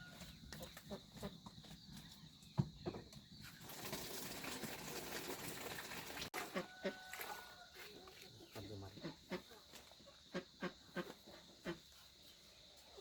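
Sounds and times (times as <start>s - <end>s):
water splashing: 3.6s - 6.6s.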